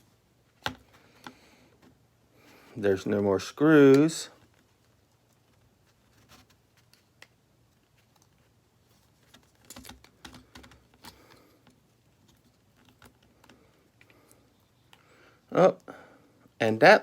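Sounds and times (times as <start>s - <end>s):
small parts clicking and tapping: 9.2s - 15.1s.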